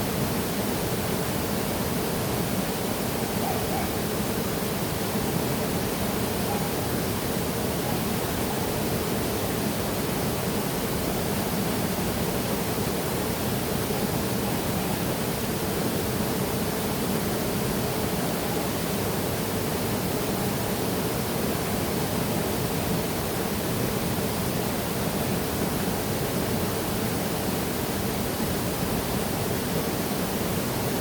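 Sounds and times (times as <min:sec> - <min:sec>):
waterfall roaring: 0:00.0 - 0:31.0.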